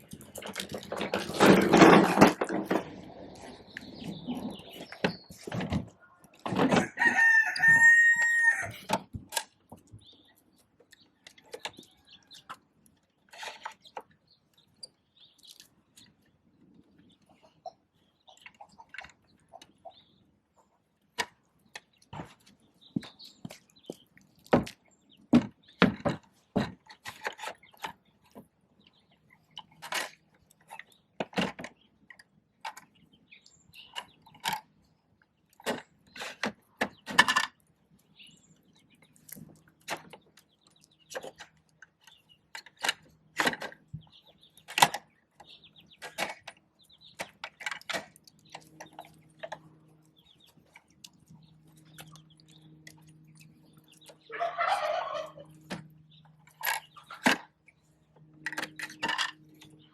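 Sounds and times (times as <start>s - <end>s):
plastic toy truck clicking and knocking: 42.1s - 49.6s.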